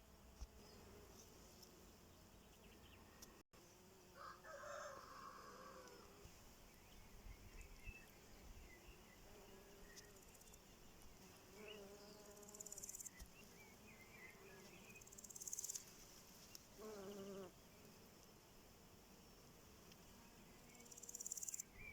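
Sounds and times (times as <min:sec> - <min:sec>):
insect trills: 0:20.6 - 0:21.8.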